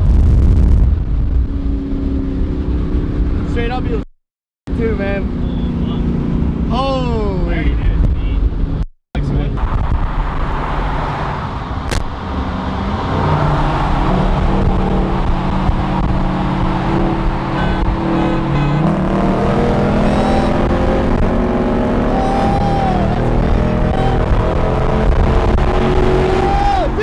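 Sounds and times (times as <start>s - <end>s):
loud car engine accelerating: 8.4s - 27.0s.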